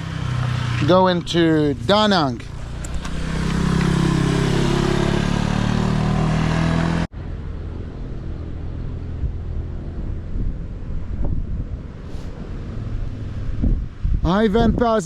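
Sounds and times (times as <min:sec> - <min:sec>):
motorcycle engine running: 0:00.0 - 0:06.1
wind and road noise: 0:00.0 - 0:15.0
wind noise on microphone: 0:07.9 - 0:15.0.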